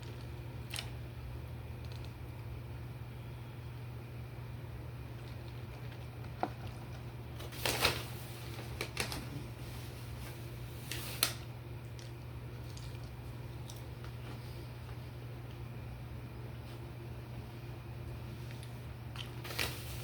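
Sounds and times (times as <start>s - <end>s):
food rustling: 18.3s - 20.0s.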